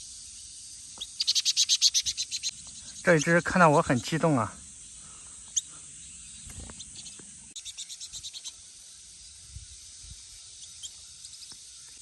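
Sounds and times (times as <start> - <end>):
faint bird chirps: 0.0 - 12.0
insect hiss: 0.0 - 12.0
bird chattering call: 1.0 - 4.2.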